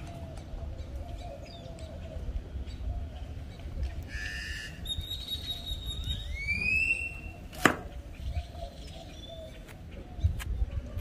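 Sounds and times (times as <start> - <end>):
bird whistling calls: 4.1 - 7.5.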